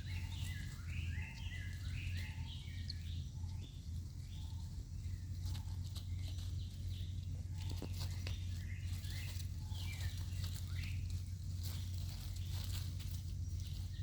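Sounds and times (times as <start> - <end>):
clicks and rustles on ground: 0.0 - 14.0
high chirping calls: 0.0 - 14.0
steady low hum: 0.0 - 14.0.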